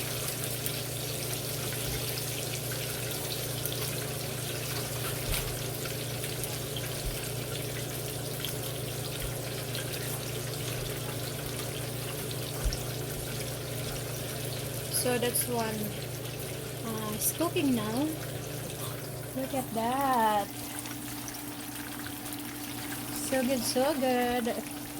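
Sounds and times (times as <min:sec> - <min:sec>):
fish sizzling in hot oil: 0:00.0 - 0:24.9.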